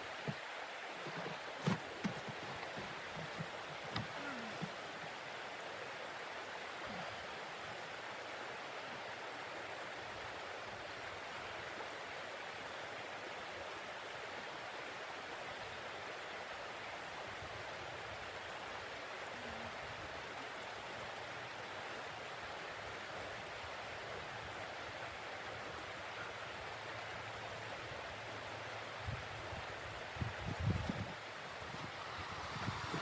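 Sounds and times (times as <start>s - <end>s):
steady rushing hiss: 26.8s - 33.0s.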